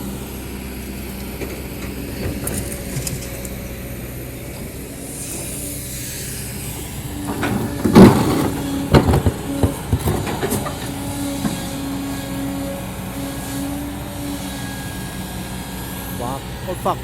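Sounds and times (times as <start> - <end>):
excavator engine running: 0.0 - 17.0
bucket scraping and knocking rock: 7.4 - 11.0.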